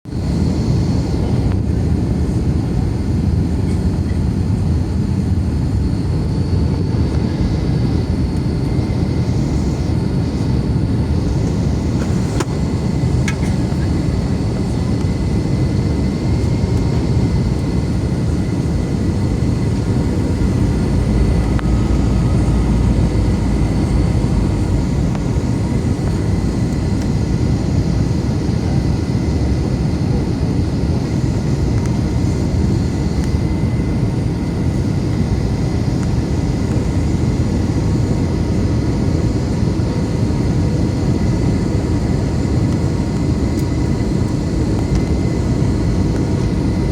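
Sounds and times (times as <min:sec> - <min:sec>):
faint high whine: 0:00.1 - 0:46.9
engines rumbling: 0:05.2 - 0:28.3.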